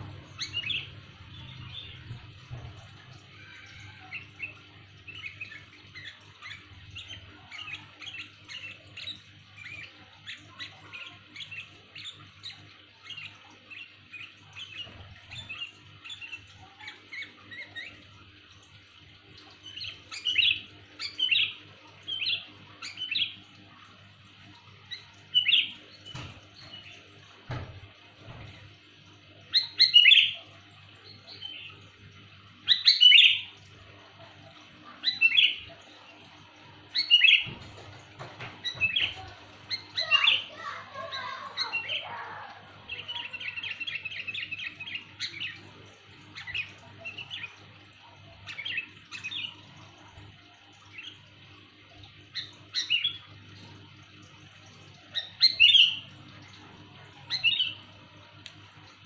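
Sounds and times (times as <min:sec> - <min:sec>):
bird chirping: 0:00.0 - 0:18.2, 0:32.6 - 0:33.6, 0:34.5 - 0:56.2, 0:57.0 - 0:57.9
bird call phrases: 0:38.7 - 0:45.7.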